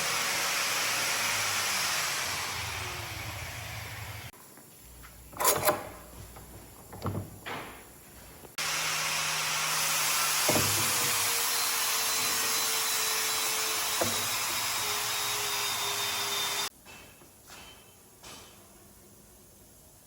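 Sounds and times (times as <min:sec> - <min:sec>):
power tool hissing on wood: 0:08.6 - 0:16.7.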